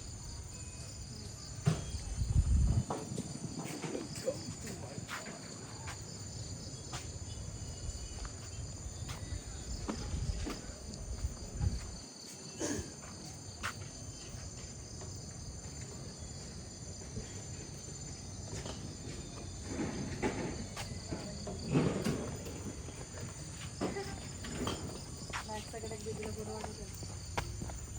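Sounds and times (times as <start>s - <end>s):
insects chirring: 0.0s - 27.9s
footsteps: 8.0s - 27.9s.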